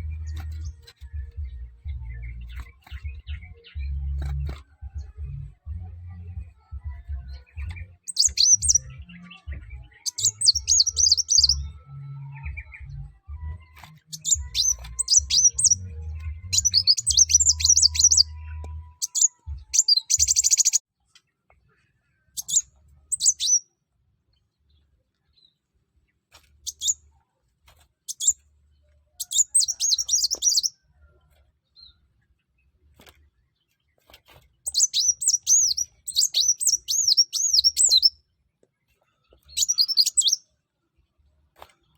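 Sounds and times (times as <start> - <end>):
sunbird chirping and trilling: 7.6 - 11.8, 14.0 - 20.8, 22.4 - 23.6, 28.1 - 28.4, 29.2 - 30.7, 34.6 - 38.2, 39.5 - 40.4.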